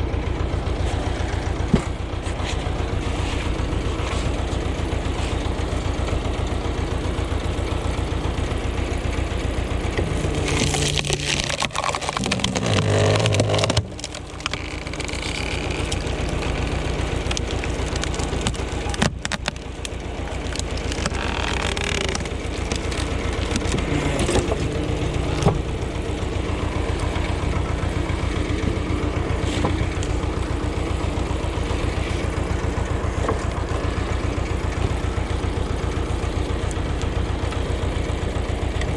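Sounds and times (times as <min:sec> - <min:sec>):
tractor engine chugging: 0:00.0 - 0:38.9.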